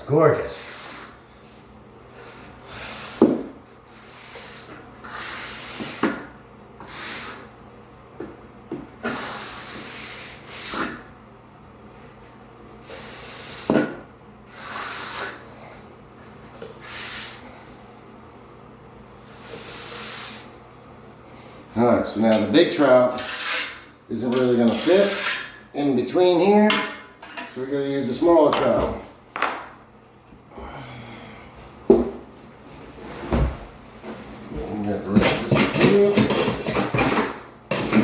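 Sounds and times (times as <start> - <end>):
trowel scraping mortar: 23.1 - 25.6.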